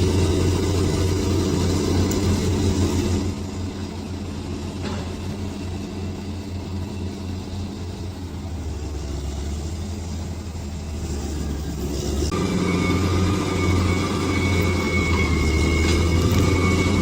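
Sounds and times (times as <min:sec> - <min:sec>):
bulldozer diesel engine droning: 0:00.0 - 0:17.0.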